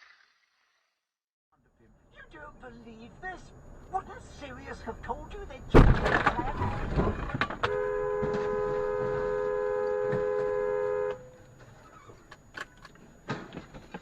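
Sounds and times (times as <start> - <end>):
two-tone car horn: 7.6 - 11.4.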